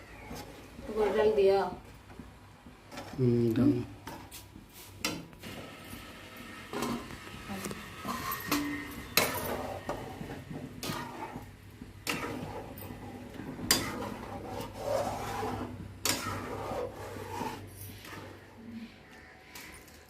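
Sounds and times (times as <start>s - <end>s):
rasping scraping: 8.0s - 18.4s.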